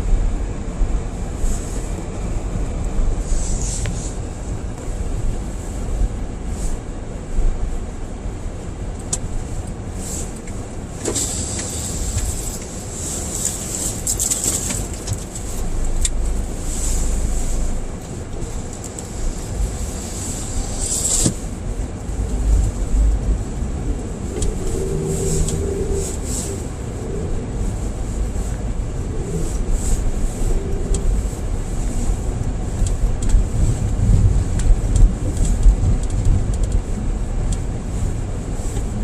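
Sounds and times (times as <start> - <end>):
car engine and tyres rumbling: 0.0 - 39.0
snow clicks and crackles: 9.5 - 39.0.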